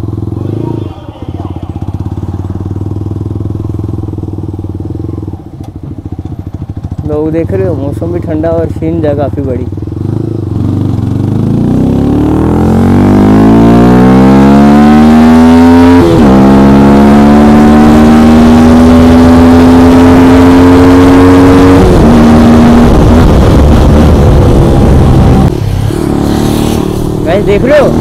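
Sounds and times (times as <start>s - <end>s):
motorcycle engine accelerating: 0.0s - 28.0s
wind noise: 21.7s - 27.3s.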